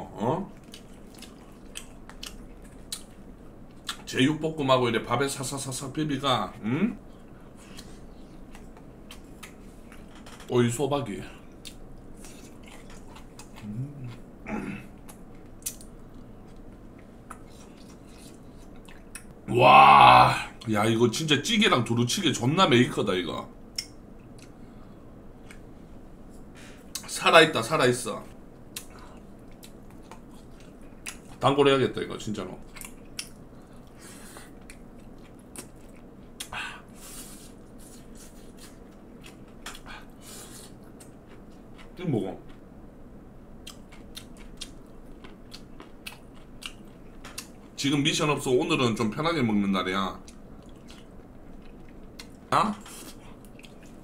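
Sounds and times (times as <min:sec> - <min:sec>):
person chewing food: 0:00.5 - 0:04.0, 0:11.5 - 0:19.4, 0:28.6 - 0:31.4, 0:32.6 - 0:42.7, 0:43.6 - 0:47.8, 0:50.2 - 0:54.0
person humming: 0:13.6 - 0:14.8.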